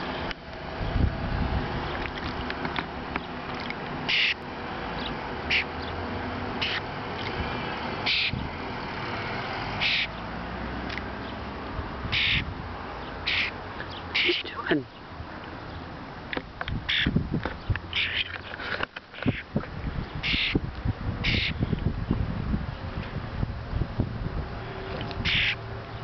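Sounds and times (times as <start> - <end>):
bird harsh squawks: 4.1 - 4.4, 5.5 - 5.7, 6.6 - 6.8, 8.0 - 8.4, 9.8 - 10.1, 12.1 - 12.5, 13.2 - 14.7, 16.9 - 17.2, 17.9 - 18.3, 19.2 - 19.5, 20.2 - 20.6, 21.2 - 21.6, 25.2 - 25.6.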